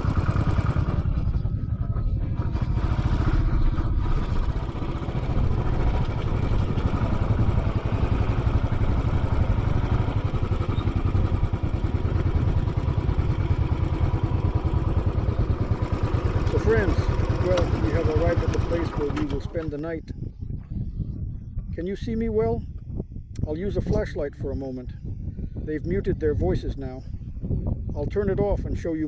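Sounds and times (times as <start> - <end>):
motorcycle engine idling: 0.0 - 19.8.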